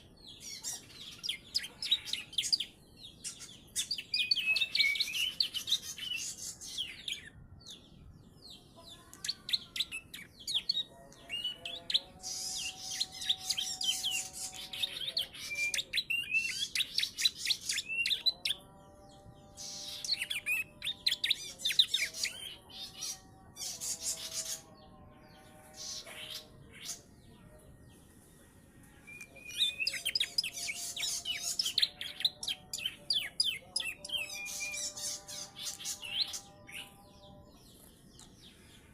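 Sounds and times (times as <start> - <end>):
bird chirps and trills: 0.0 - 28.0, 28.9 - 38.9.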